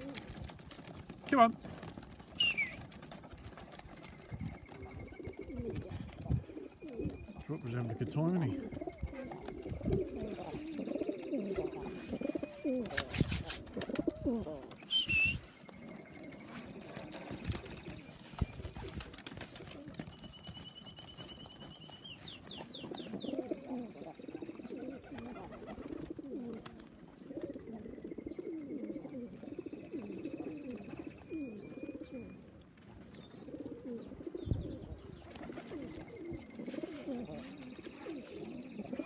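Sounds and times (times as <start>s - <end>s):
pigeons cooing: 0.0s - 39.0s.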